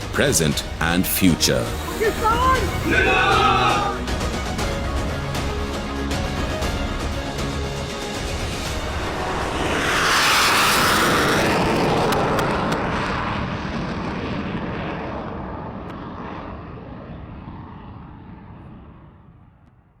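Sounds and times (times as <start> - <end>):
fighter jet flying past: 8.0 - 19.9.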